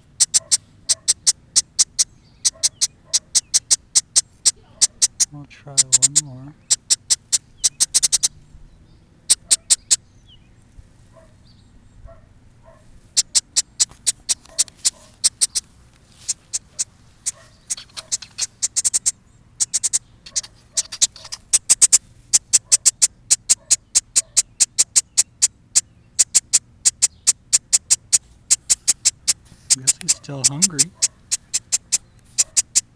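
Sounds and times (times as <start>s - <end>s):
fledgling bird begging chirps: 0.0s - 10.6s, 11.2s - 32.9s.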